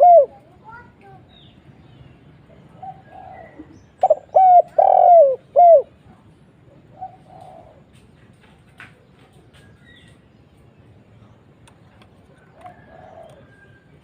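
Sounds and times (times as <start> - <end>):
dove cooing: 0.0 - 0.5, 2.7 - 6.0, 6.8 - 8.0, 12.4 - 13.9.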